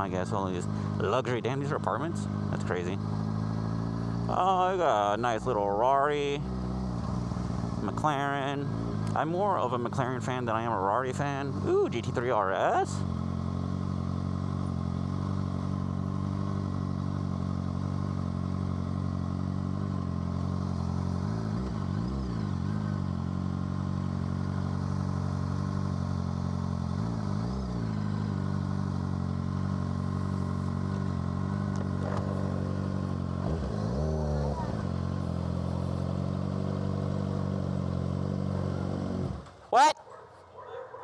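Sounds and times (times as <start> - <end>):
motorcycle engine idling: 0.0 - 41.0.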